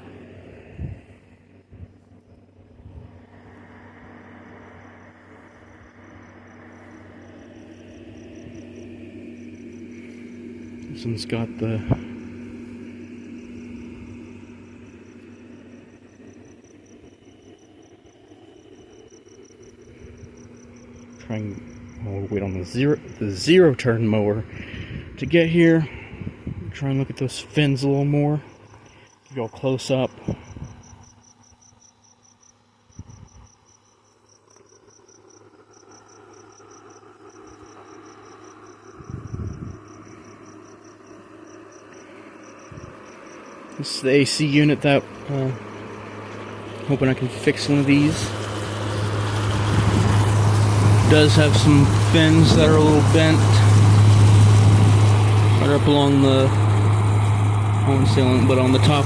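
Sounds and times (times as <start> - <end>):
air conditioner humming: 0.0 - 33.8, 34.8 - 59.0
cricket chirping: 1.8 - 24.0, 27.6 - 50.9.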